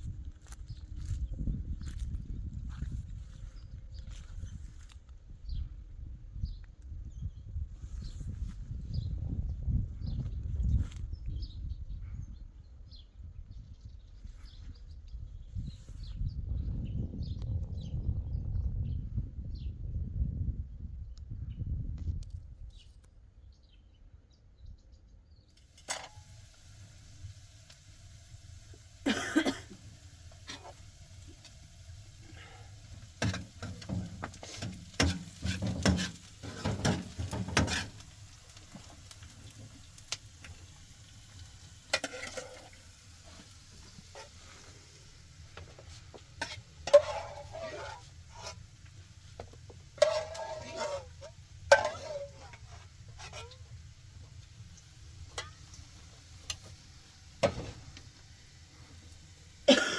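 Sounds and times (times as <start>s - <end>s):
utensil stirring in a pot: 25.8s - 58.2s
kitchenware clattering: 33.2s - 38.0s.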